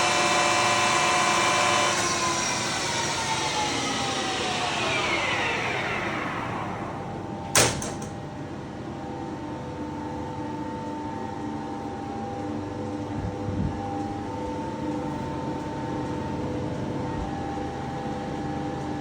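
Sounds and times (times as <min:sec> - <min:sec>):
lathe whine falling in pitch: 0:01.5 - 0:08.2
sharp clunk: 0:07.5 - 0:08.2.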